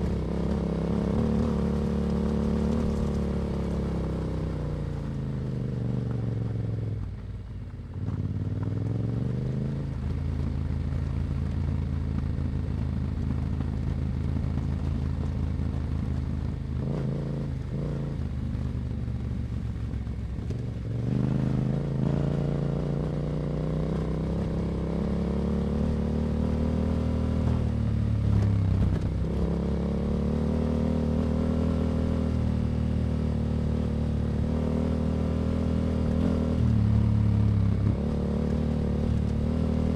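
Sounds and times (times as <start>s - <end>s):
motorcycle engine revving: 0.0s - 7.0s, 20.4s - 39.9s.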